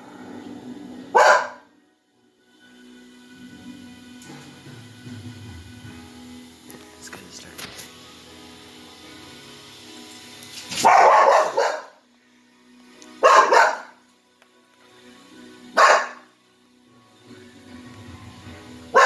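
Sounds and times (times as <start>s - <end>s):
dog barking: 1.1s - 1.7s, 10.8s - 12.0s, 13.2s - 14.0s, 15.8s - 16.3s.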